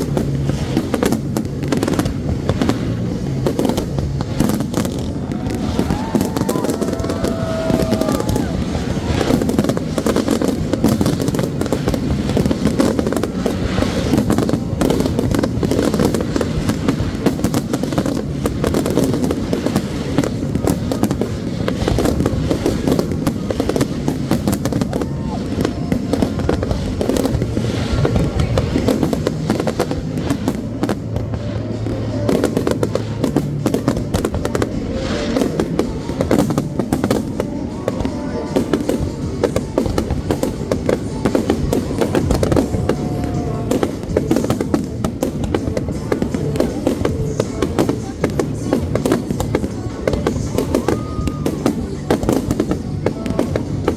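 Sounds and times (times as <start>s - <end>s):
fireworks bangs and crackles: 0.0s - 53.9s.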